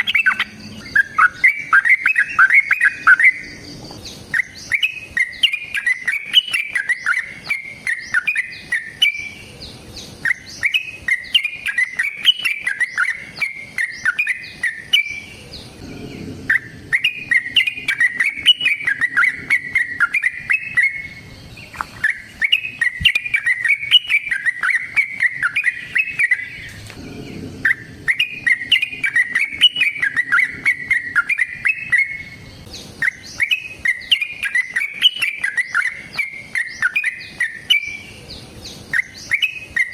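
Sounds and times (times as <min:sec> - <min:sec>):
bird singing chattering notes: 0:00.0 - 0:39.9.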